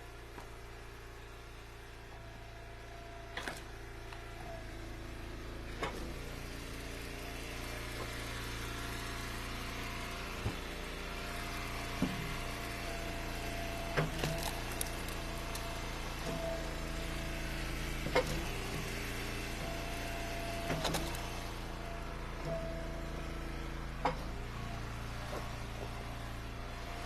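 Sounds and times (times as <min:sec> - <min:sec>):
log splitter engine running: 0:00.0 - 0:27.0
firewood splitting knocks: 0:13.9 - 0:15.7.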